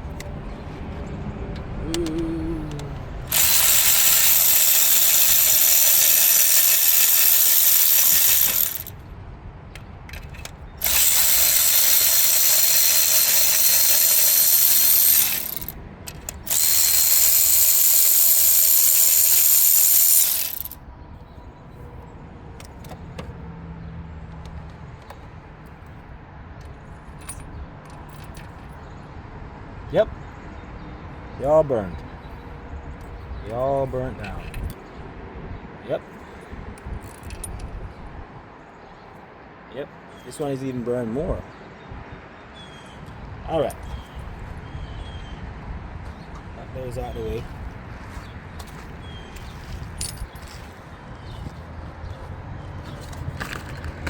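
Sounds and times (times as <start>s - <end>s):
power ratchet running: 1.9s - 9.0s, 10.2s - 20.8s.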